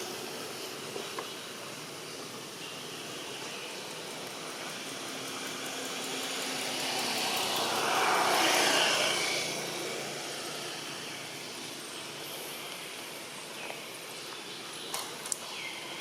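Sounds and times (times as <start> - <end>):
vehicle passing by: 3.9 - 12.6.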